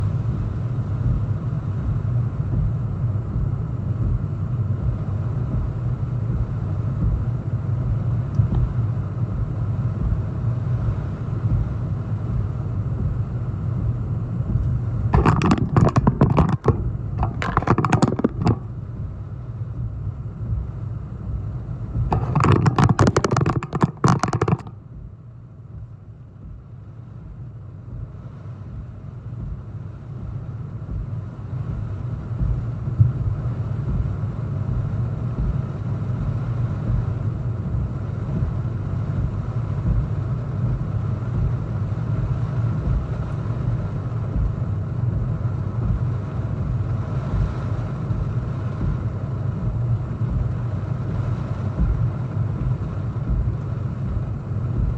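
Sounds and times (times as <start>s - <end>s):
strong wind buffeting microphone: 11.4s - 19.3s.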